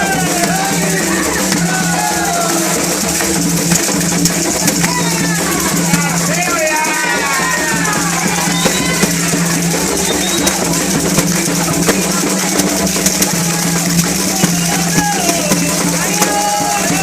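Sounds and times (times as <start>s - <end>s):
drums and hand percussion: 0.0s - 17.0s
voices singing or calling: 0.0s - 17.0s.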